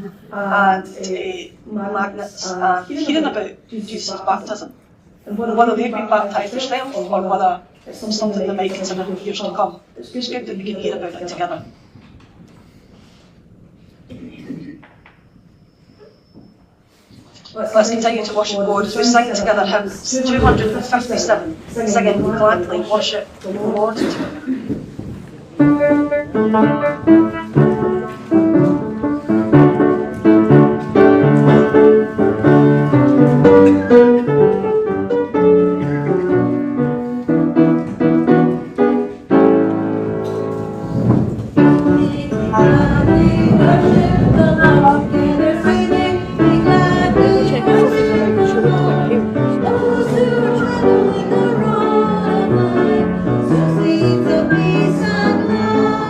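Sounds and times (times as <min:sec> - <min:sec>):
piano playing hymn tune: 0:25.4 - 0:56.0
congregation singing a hymn: 0:40.7 - 0:56.0.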